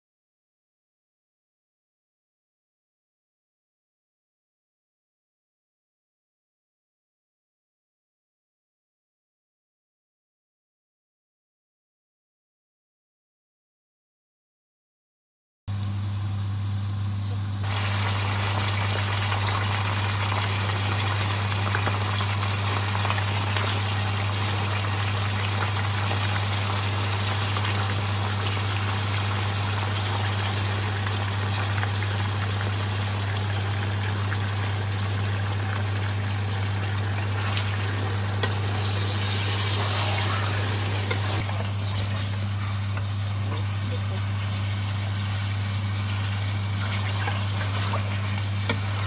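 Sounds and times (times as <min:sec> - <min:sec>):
food sizzling in hot oil: 0:17.6 - 0:49.0.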